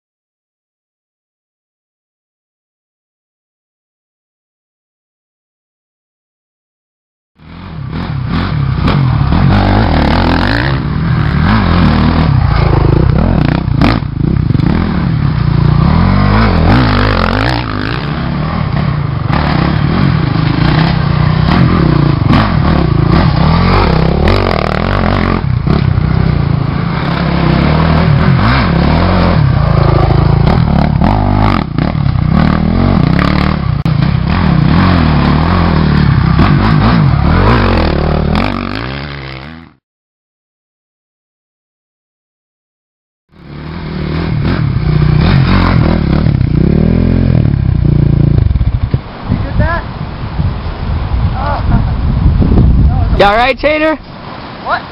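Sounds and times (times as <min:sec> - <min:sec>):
motorcycle engine revving: 0:07.4 - 0:39.8, 0:43.3 - 0:49.8.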